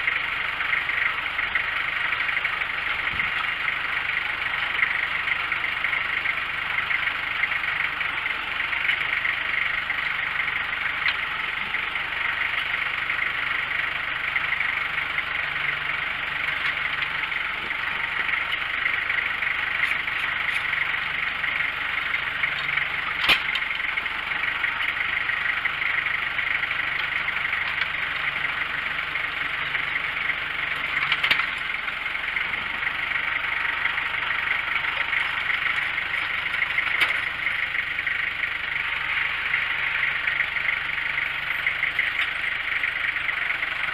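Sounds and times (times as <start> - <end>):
engine idling: 0.0 - 43.9
sharp clicks or knocks: 23.2 - 23.6.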